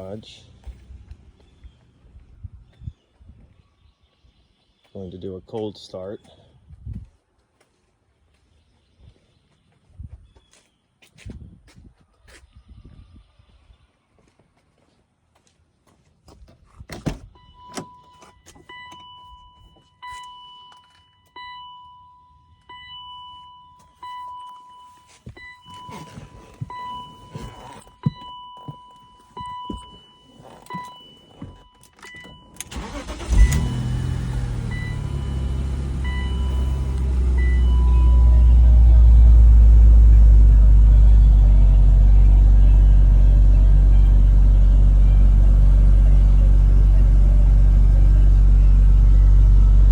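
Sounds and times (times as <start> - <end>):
car warning chime beeping: 17.3 - 48.0
car engine cranking and idling: 25.2 - 49.9.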